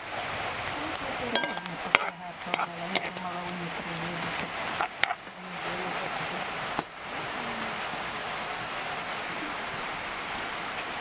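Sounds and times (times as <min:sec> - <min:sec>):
broth simmering hiss: 0:00.0 - 0:11.0
vegetables sizzling in frying pan: 0:00.8 - 0:09.3
metal spoon clinking on pan: 0:01.3 - 0:03.2.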